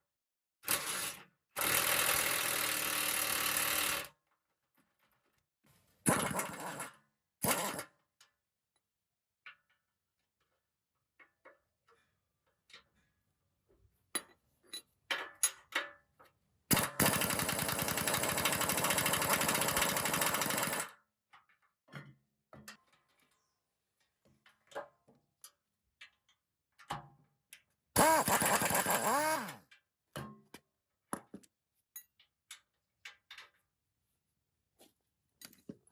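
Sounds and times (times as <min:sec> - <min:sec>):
power tool rattling: 0:00.7 - 0:04.1, 0:06.1 - 0:07.8, 0:16.7 - 0:20.9, 0:28.0 - 0:29.6.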